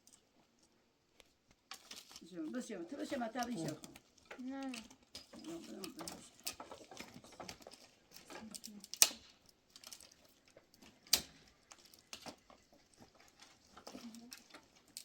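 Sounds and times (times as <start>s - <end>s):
small clicks and crackles: 0.0s - 15.0s.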